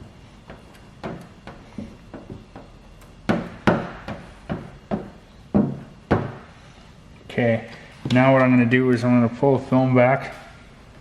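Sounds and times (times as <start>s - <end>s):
irregular knocks and taps: 0.5s - 6.4s.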